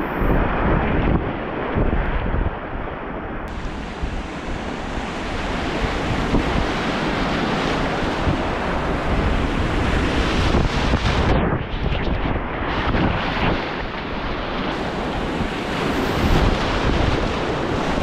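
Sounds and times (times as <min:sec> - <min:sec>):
wind buffeting microphone: 0:00.0 - 0:18.0
whitewater rapids roaring: 0:14.7 - 0:18.0.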